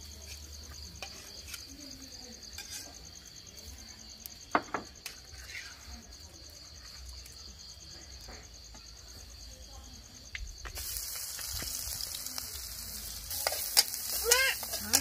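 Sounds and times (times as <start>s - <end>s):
food sizzling in hot oil: 0.0s - 3.8s, 10.6s - 15.0s
spatula scraping metal wok: 0.1s - 1.7s, 2.5s - 3.1s, 5.0s - 5.9s, 13.3s - 15.0s.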